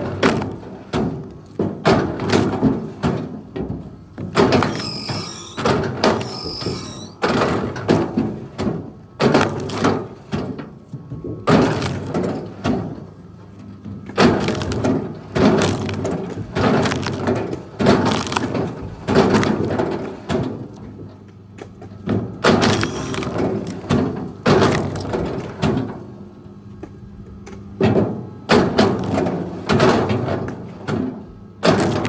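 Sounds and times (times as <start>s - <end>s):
wooden branches cracking: 14.2s - 19.6s.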